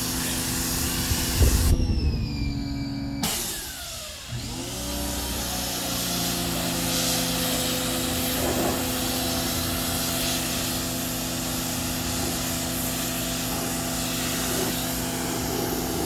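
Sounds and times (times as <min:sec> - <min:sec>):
pump motor humming: 0:00.0 - 0:16.0
water jet spraying: 0:04.9 - 0:16.0.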